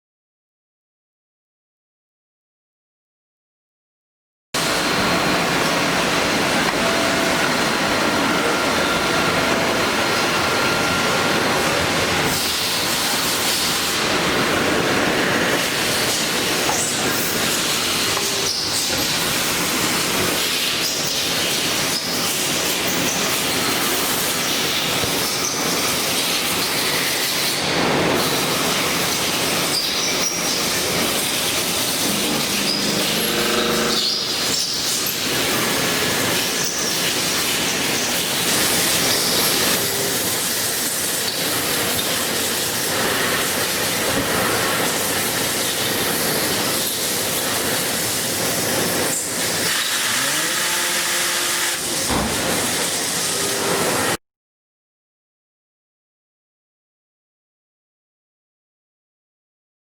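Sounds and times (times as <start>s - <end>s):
lathe running: 30.0s - 34.9s, 49.4s - 54.1s.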